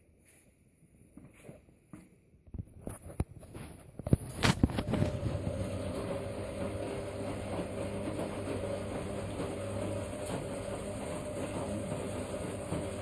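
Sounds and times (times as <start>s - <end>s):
washing machine motor hum: 4.0s - 13.0s.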